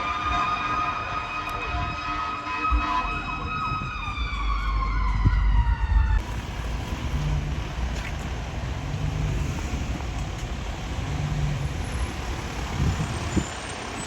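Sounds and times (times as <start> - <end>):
emergency vehicle siren: 0.0 - 14.0
traffic noise: 0.0 - 14.0
engine rumble: 3.8 - 14.0.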